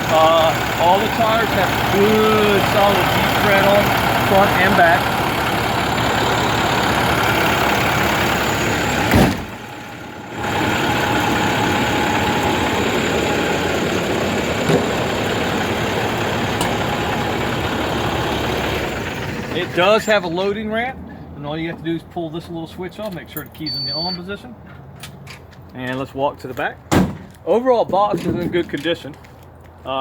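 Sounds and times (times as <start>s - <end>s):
diesel truck idling: 0.0s - 21.4s.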